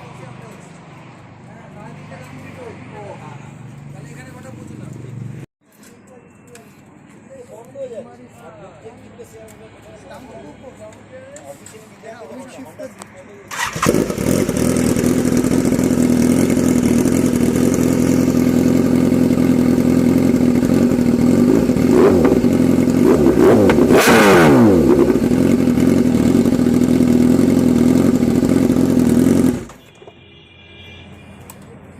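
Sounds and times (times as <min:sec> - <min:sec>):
vehicles passing by: 0:00.0 - 0:05.5, 0:06.5 - 0:25.9, 0:31.0 - 0:31.9
motorcycle engine running: 0:13.5 - 0:29.8.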